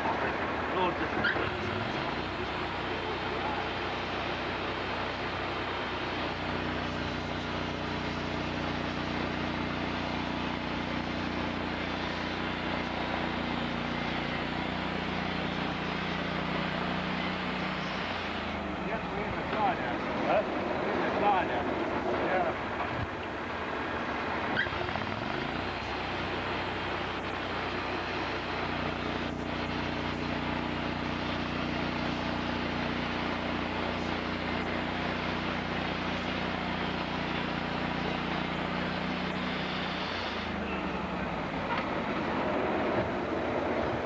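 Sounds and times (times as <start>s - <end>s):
continuous rushing noise: 0.0s - 44.0s
sawmill engine revving: 24.3s - 44.0s.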